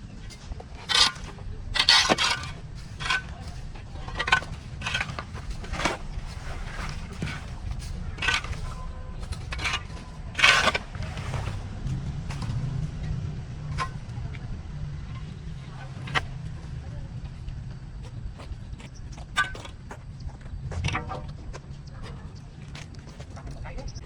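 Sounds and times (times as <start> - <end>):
weeds scraping and crunching: 0.0 - 17.4
steady low rumble: 0.0 - 24.0.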